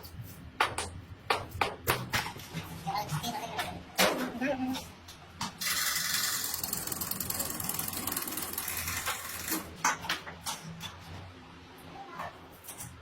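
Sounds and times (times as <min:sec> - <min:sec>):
rapid mechanical rattle: 0:05.6 - 0:09.7.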